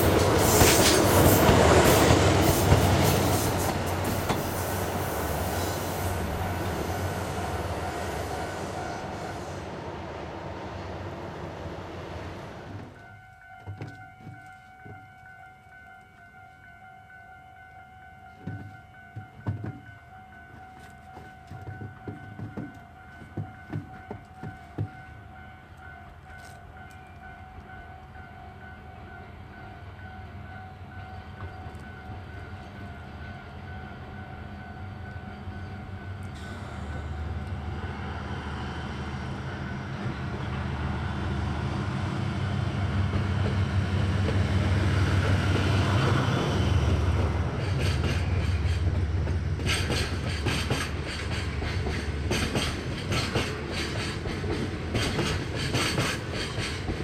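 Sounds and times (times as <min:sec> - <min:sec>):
train engine rumble: 0:00.0 - 0:57.0
wheels clattering over rail joints: 0:47.2 - 0:57.0.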